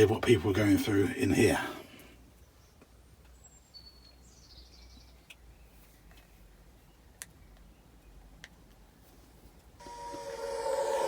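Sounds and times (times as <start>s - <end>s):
faint bird chirps: 2.4s - 8.2s.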